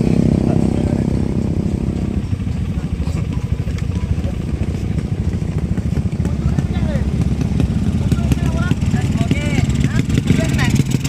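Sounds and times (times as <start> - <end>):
engine revving high: 0.0 - 2.4, 6.8 - 11.0
motorcycle engine idling: 0.0 - 11.0.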